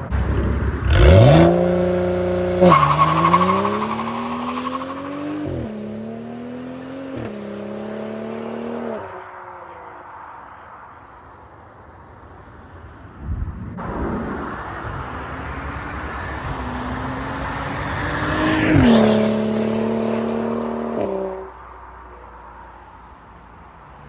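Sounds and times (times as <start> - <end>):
car engine accelerating past: 14.2 - 21.5.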